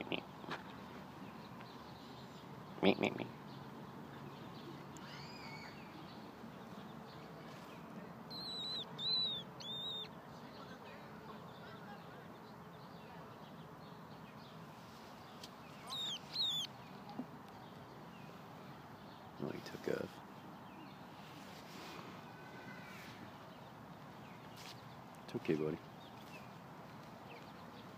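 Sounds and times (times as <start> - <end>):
low background hiss: 0.1 - 27.9
bird calling high thin notes: 8.3 - 10.1, 15.8 - 16.7.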